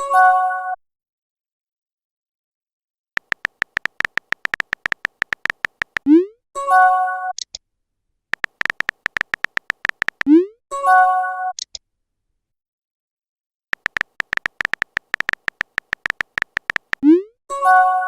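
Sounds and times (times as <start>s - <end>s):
phone keyboard typing clicks: 3.2s - 6.1s, 8.3s - 10.3s, 13.8s - 17.1s.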